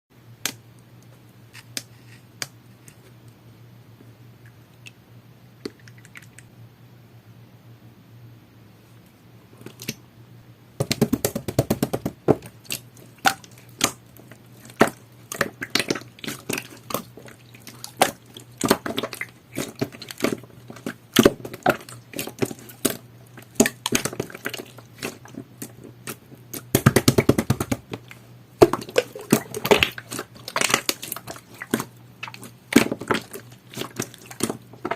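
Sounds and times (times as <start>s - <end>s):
low steady hum: 0.2s - 34.9s
slime squishing by hand: 10.8s - 34.9s.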